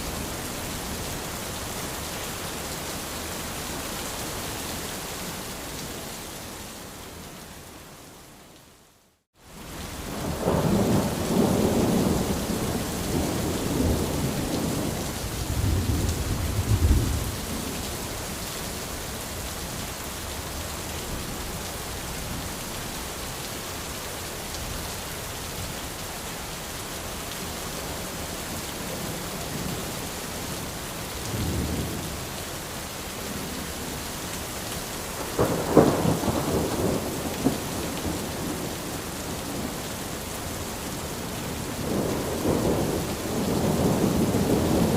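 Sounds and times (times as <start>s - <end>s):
rain on an umbrella: 0.0s - 44.9s
thunder rumbling: 10.2s - 17.8s, 35.2s - 38.9s, 41.8s - 44.9s.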